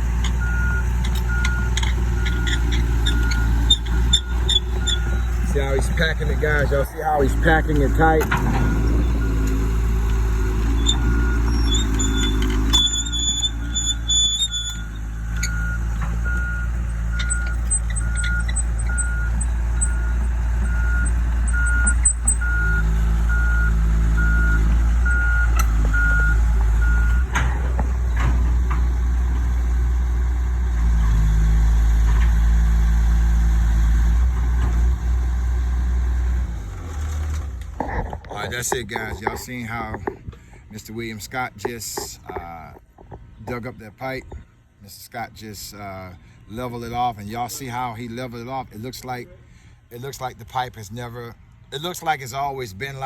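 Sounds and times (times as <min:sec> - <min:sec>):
excavator travel alarm beeping: 0:00.0 - 0:28.3
excavator diesel engine running: 0:00.0 - 0:37.6.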